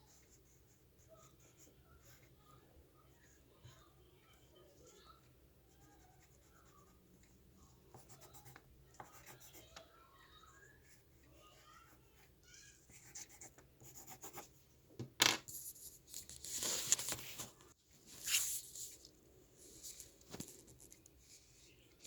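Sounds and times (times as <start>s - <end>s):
faint drawing strokes: 0.0s - 14.6s, 17.9s - 22.0s
paper rustling: 15.5s - 21.6s.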